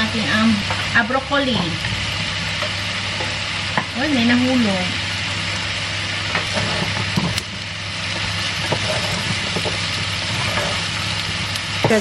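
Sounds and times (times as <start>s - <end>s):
vegetables sizzling in a frying pan: 0.0s - 12.0s
wooden spatula knocking and scraping: 8.1s - 10.9s.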